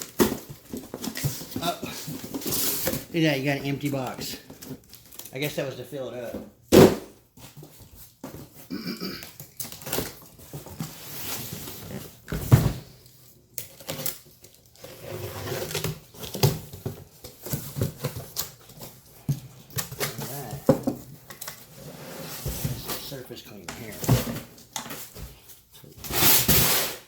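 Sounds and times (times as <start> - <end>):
cardboard boxes being handled: 0.0 - 5.2.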